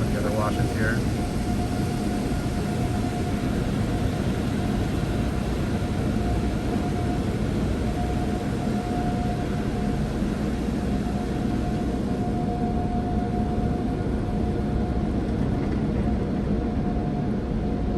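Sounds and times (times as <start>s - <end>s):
faint steady hum: 0.0s - 17.9s.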